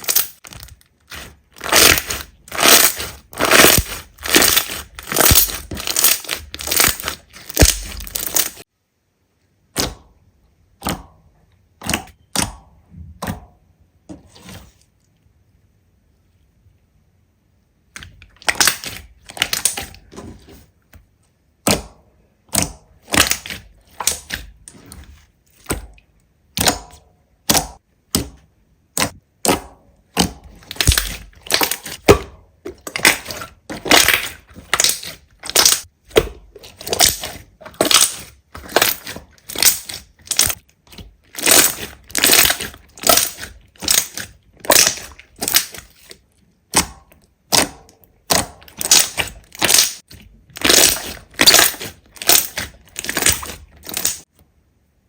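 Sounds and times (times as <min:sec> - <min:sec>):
slime crackling and popping: 0:00.0 - 0:08.7, 0:18.0 - 0:20.0, 0:22.5 - 0:24.6, 0:28.9 - 0:54.3.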